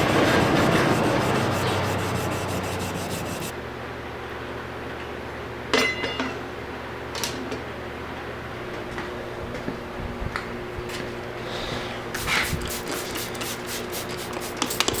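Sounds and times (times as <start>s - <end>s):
abrasive rubbing on knife: 0.0s - 3.5s.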